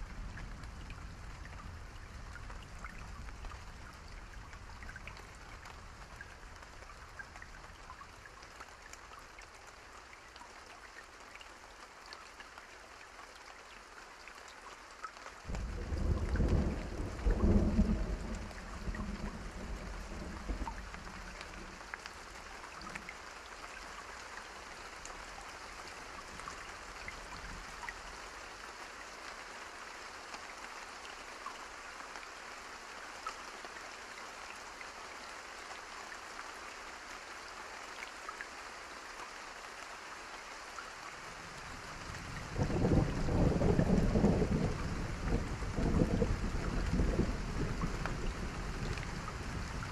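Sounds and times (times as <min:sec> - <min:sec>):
steady rain falling: 0:00.0 - 0:49.9
thunder rumbling: 0:15.5 - 0:21.8, 0:42.3 - 0:49.9.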